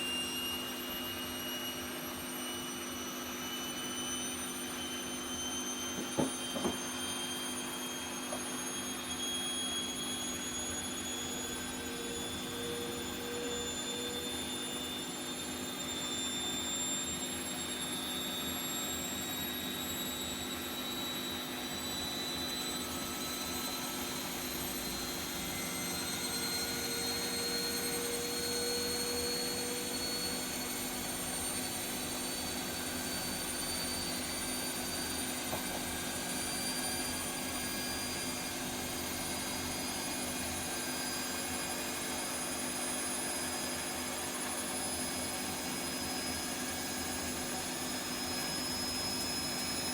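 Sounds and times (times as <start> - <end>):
washing machine spinning: 4.6 - 12.5.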